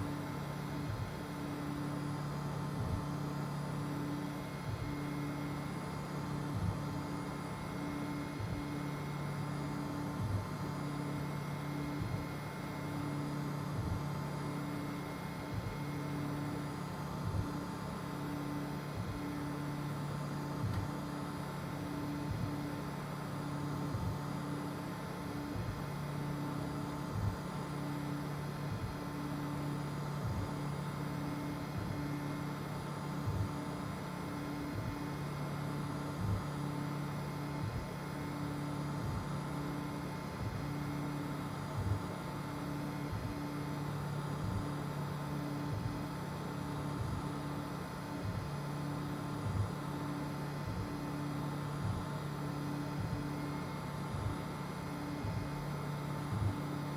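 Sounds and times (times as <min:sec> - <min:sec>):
cooling fans whirring: 0:00.0 - 0:56.9
stepper motors humming: 0:00.0 - 0:56.9.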